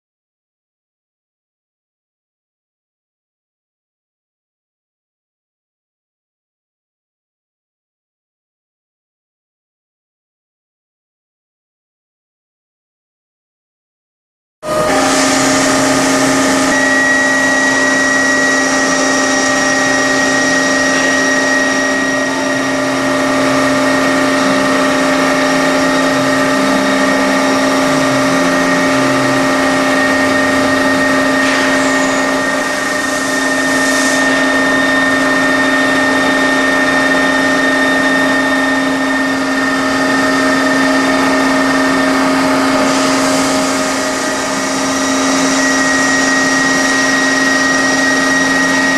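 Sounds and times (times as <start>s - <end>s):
machine spindle drilling metal: 14.7s - 48.9s.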